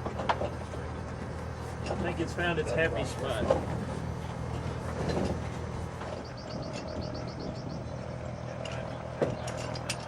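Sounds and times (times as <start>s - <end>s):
low mechanical hum: 0.0s - 10.0s
bird high trill: 6.2s - 7.9s.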